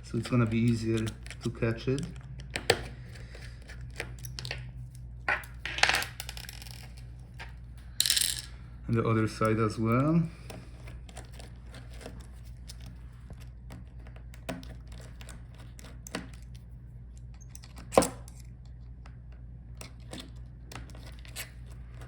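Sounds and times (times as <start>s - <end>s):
steady low hum: 0.0s - 22.0s
metal parts clicking and tapping: 0.2s - 2.8s.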